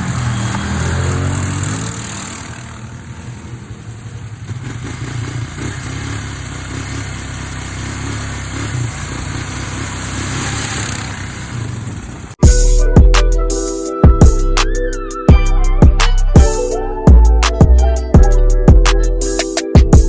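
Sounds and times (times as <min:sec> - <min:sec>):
atv engine rumble: 0:00.0 - 0:12.4.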